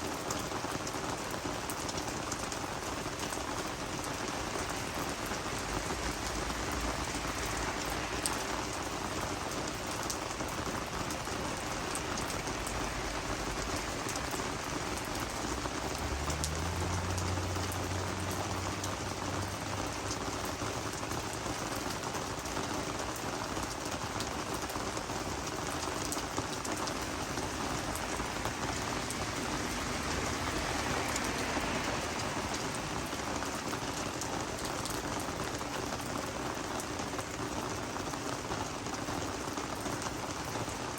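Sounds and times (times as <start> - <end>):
rain falling on plants: 0.0 - 40.9.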